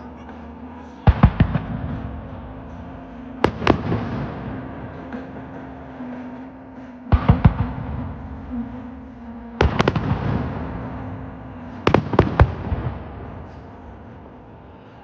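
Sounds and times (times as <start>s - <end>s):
fireworks bangs echoing: 1.0s - 5.5s, 9.6s - 13.8s.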